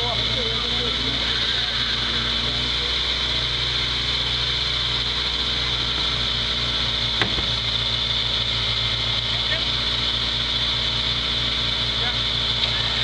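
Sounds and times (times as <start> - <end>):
car engine idling: 0.0 - 13.0
single knock: 7.2 - 7.5.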